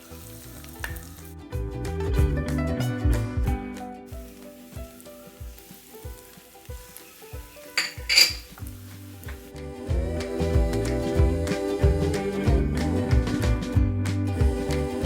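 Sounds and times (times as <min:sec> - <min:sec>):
food sizzling in oil: 0:00.0 - 0:01.4, 0:04.1 - 0:10.9
background music with steady beat: 0:00.8 - 0:15.0
sharp clinks: 0:07.8 - 0:08.5.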